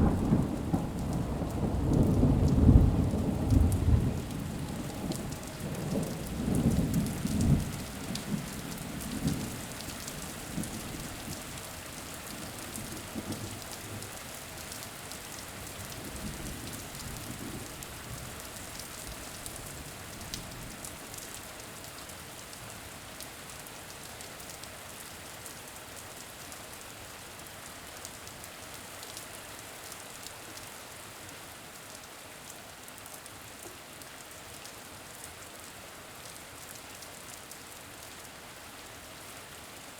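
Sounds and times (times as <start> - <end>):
low roll of thunder: 0.0 - 9.6
steady rain: 0.0 - 39.9.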